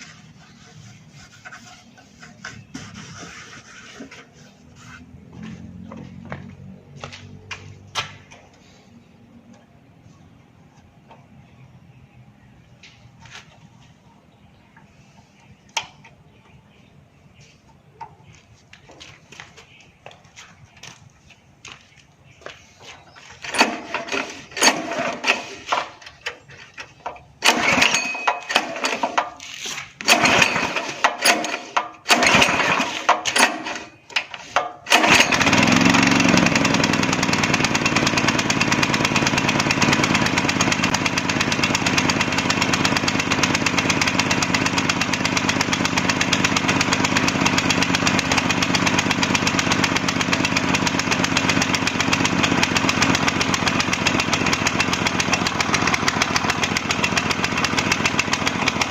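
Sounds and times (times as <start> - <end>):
small gasoline engine running: 23.3 - 58.9.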